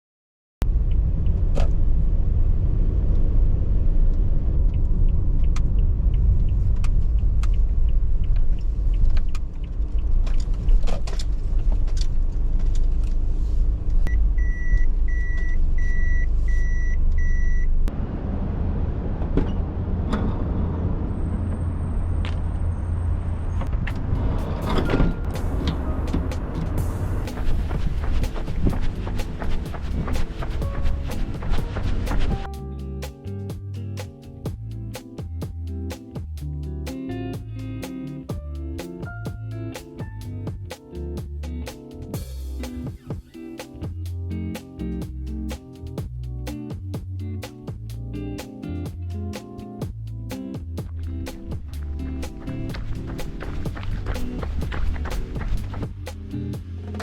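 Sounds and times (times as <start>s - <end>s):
car road and engine rumble: 0.6s - 43.0s, 47.7s - 57.0s
high beeps: 14.1s - 17.7s.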